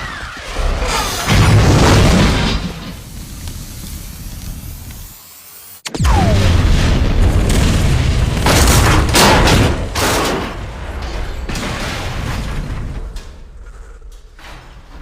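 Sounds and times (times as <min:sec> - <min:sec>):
explosions with heavy rumbling: 0:00.8 - 0:03.3, 0:06.0 - 0:13.6.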